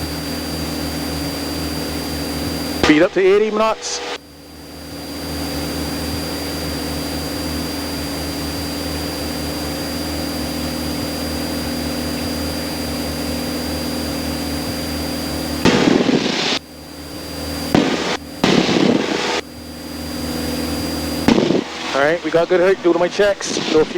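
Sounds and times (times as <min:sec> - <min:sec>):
airplane engine drone: 0:00.0 - 0:23.9
loud crackling burst: 0:02.7 - 0:04.2, 0:15.2 - 0:16.7, 0:17.4 - 0:19.5, 0:21.0 - 0:23.9.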